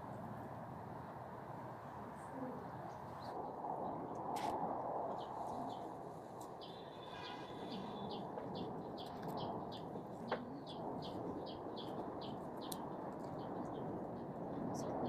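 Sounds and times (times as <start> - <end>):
small bird chirping: 5.1 - 14.0.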